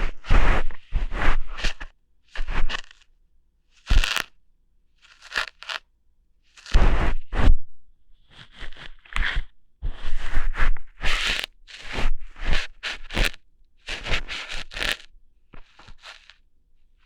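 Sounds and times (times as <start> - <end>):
crackly ear hair plucking: 3.8 - 4.3, 5.0 - 5.8, 6.5 - 6.8, 11.2 - 11.8, 13.0 - 16.4.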